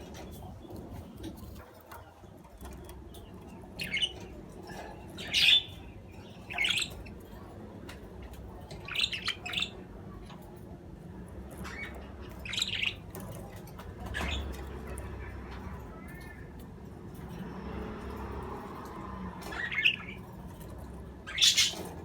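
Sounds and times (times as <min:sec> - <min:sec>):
budgerigars chirping: 0:03.1 - 0:07.5, 0:08.5 - 0:09.9, 0:11.5 - 0:16.4, 0:19.4 - 0:22.0
squawk-like bird calls: 0:08.8 - 0:09.8, 0:19.4 - 0:20.2, 0:21.2 - 0:22.0.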